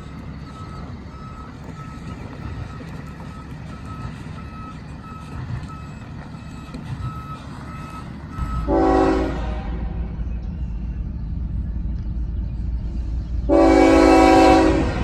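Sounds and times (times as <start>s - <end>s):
backup alarm beeping: 0.0s - 9.2s
low engine rumble: 0.0s - 15.0s
train air horn blast: 8.6s - 10.1s, 13.5s - 15.0s.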